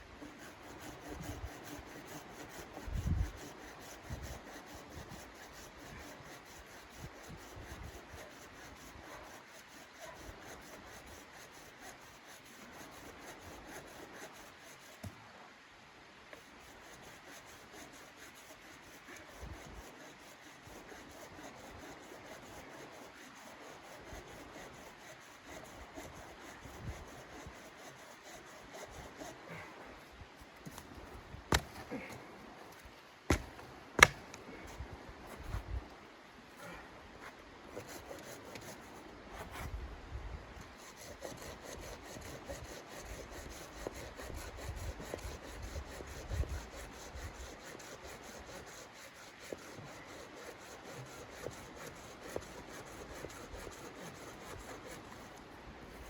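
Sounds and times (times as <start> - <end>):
rubbing and scraping: 16.5 - 35.8, 40.6 - 56.0.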